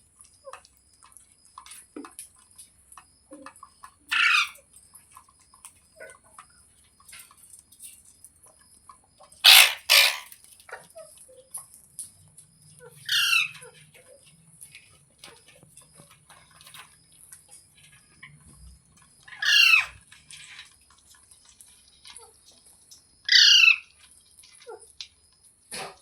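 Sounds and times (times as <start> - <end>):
parrot squawking: 9.4 - 10.3, 13.1 - 13.6, 19.4 - 20.0, 23.3 - 23.8.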